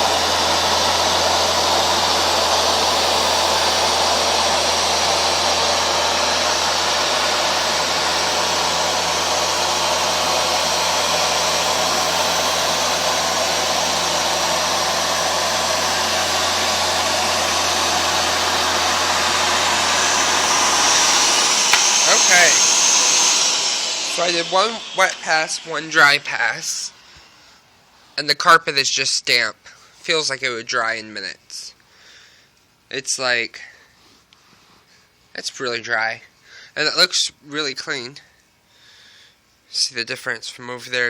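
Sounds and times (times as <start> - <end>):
brush roll turning: 0.0 - 26.8
carpet washer motor whoosh and hum: 0.0 - 27.0.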